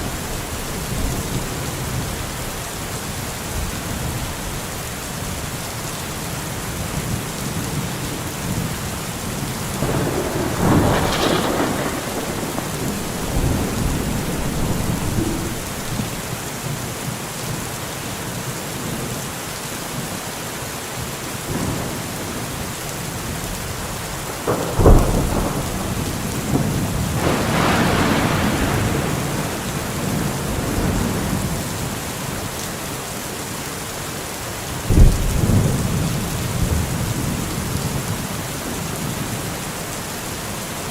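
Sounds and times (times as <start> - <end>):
steady rain falling: 0.0 - 40.9
rolling thunder rumbles: 7.0 - 16.7, 21.5 - 32.5, 34.8 - 39.4
sharp thunder cracks: 9.7 - 16.3, 24.3 - 31.7.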